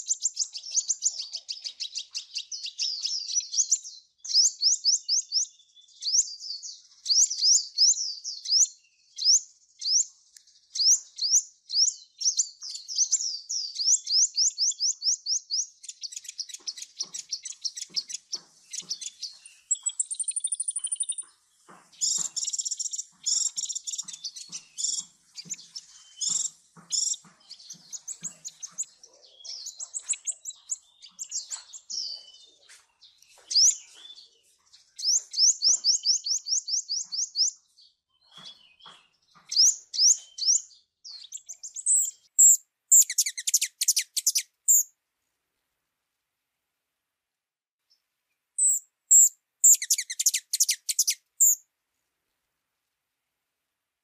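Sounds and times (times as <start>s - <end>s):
small birds chirping trills: 0.0s - 45.0s, 47.8s - 52.2s
bird chips: 13.8s - 37.6s, 38.2s - 44.8s, 48.6s - 51.6s.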